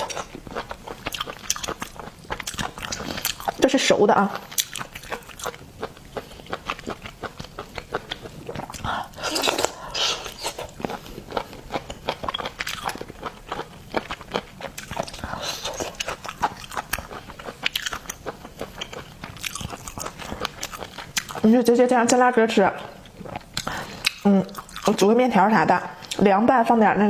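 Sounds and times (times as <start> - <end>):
wet chewing and crunching: 0.0 - 25.2
wet slurping: 8.5 - 11.2.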